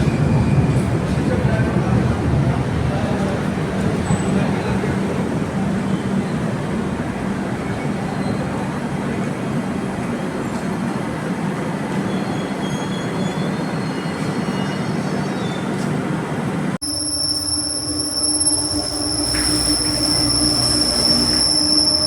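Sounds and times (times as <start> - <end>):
train wheels on track: 0.0 - 22.0
faint wheel squeals: 16.8 - 22.0.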